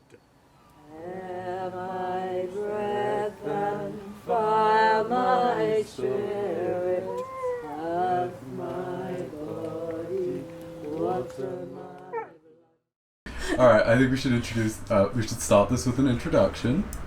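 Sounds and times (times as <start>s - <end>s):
voices chanting long held notes: 0.8s - 12.5s.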